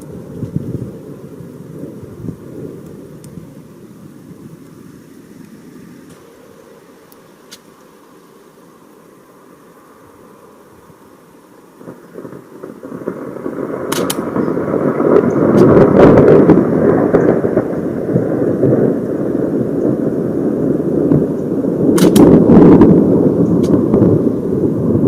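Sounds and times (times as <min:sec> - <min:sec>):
thunder rumbling: 0:00.0 - 0:07.1, 0:09.6 - 0:25.0
sharp thunder cracks: 0:11.8 - 0:25.0.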